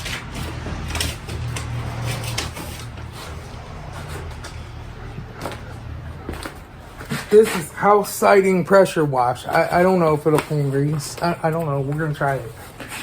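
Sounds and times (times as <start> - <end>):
objects clicking and knocking: 0.0 - 7.7.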